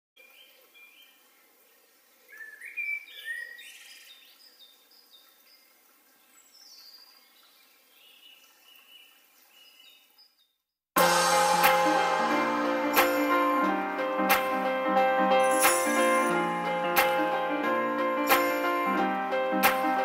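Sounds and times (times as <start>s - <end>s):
faint outdoor hiss: 0.2s - 10.3s
birds singing and chirping: 2.3s - 4.6s.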